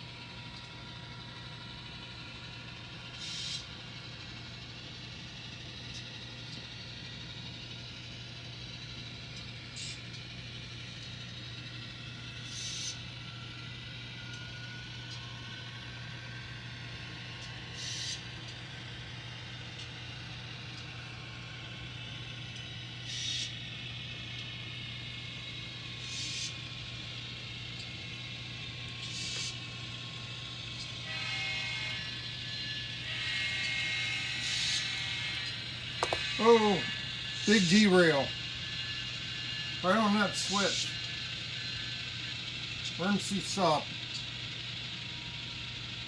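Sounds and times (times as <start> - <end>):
model train motor hum: 0.0 - 46.0
chord of steady tones: 27.9 - 38.4, 39.7 - 41.0, 43.0 - 43.8.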